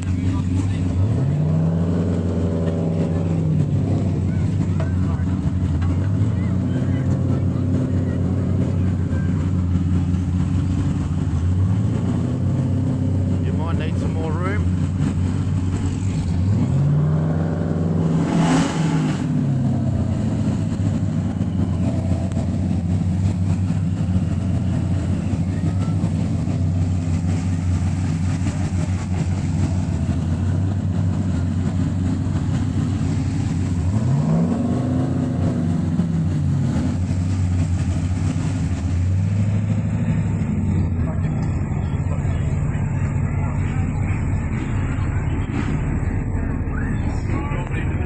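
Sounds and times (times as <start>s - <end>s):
car engine idling and revving: 0.0s - 48.0s.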